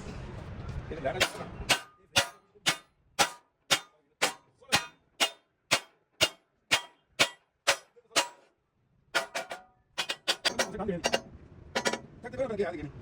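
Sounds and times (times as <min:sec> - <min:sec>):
hammer striking metal: 0:01.2 - 0:08.5, 0:09.2 - 0:12.1.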